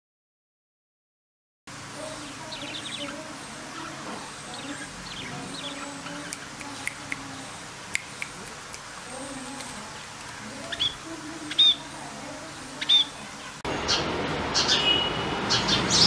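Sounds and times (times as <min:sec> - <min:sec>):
small birds chirping: 0:01.9 - 0:16.0
rapid sparrow chirping: 0:02.0 - 0:14.0, 0:14.6 - 0:16.0.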